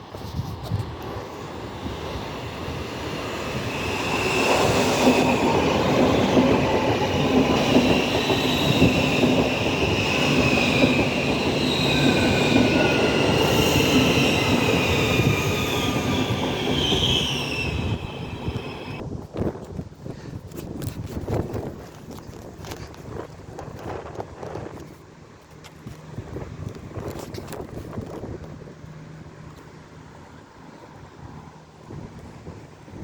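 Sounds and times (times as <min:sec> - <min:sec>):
train rumbling: 0:00.0 - 0:19.9
train wheels squealing: 0:01.4 - 0:19.0.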